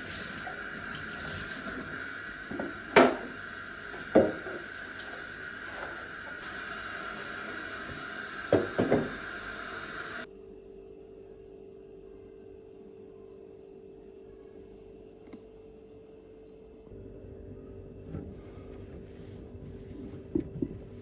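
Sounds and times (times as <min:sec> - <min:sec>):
steady hiss: 0:00.0 - 0:10.3
faint low hum: 0:10.3 - 0:21.0.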